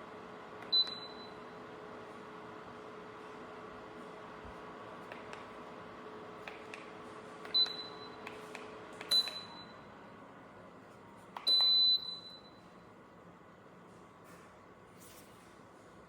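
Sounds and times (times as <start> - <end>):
heater hum with a tone: 0.0 - 16.0
control panel beeps: 0.7 - 1.4, 7.5 - 8.2, 11.4 - 12.6.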